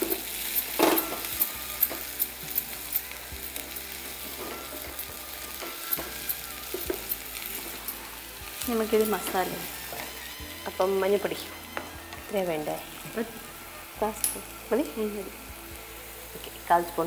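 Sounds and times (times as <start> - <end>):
food sizzling in oil: 0.0 - 17.0
small crackling pops: 14.1 - 14.5.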